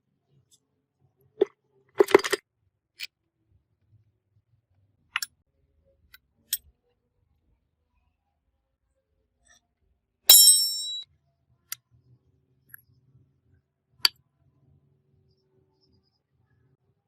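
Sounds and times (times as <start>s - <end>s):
sharp metallic clink: 10.3s - 11.0s.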